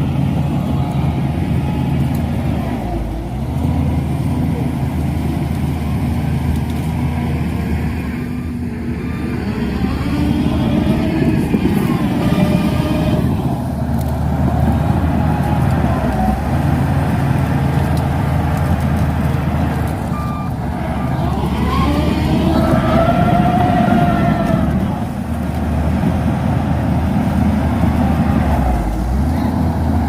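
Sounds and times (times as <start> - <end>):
bulldozer diesel engine under load: 0.0 - 30.0.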